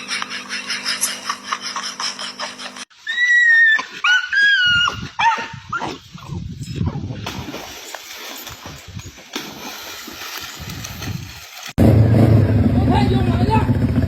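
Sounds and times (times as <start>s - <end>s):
dog whining: 3.0s - 5.9s.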